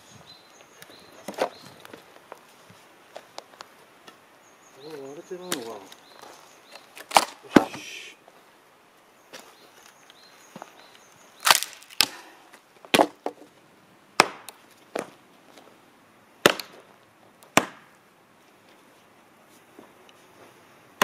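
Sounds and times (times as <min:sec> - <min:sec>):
axe striking a log: 0:07.1 - 0:07.8, 0:12.9 - 0:13.3, 0:14.2 - 0:15.1, 0:16.4 - 0:16.8, 0:17.5 - 0:17.9.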